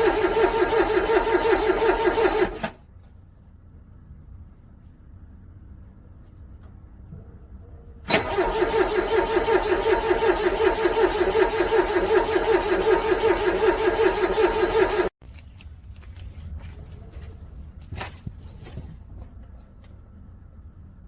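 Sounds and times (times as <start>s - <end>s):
car starter motor cranking: 0.0s - 2.8s, 8.1s - 15.1s.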